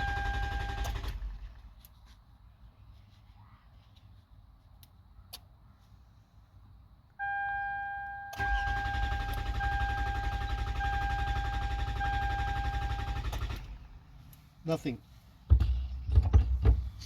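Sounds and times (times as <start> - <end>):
engine cranking on starter: 0.0 - 1.8, 8.3 - 14.1.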